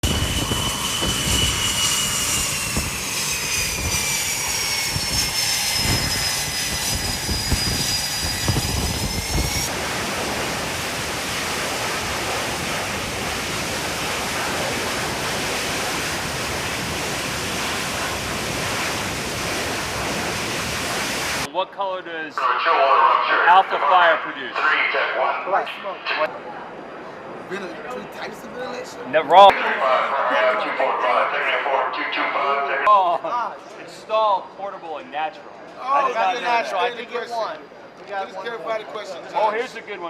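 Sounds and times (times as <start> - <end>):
jet engine whining: 0.0 - 21.5
steady rushing noise: 0.0 - 21.5.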